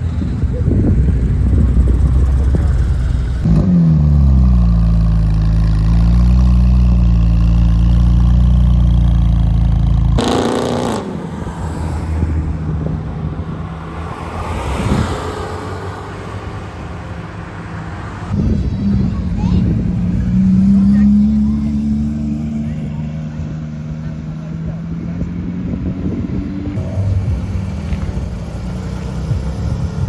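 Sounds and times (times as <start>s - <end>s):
car engine droning: 0.0s - 14.4s, 17.2s - 30.0s
car engine revving: 0.1s - 11.6s, 18.3s - 30.0s.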